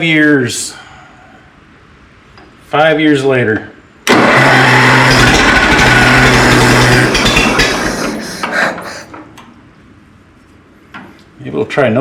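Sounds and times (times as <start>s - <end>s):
tractor engine running roughly: 4.1s - 8.9s.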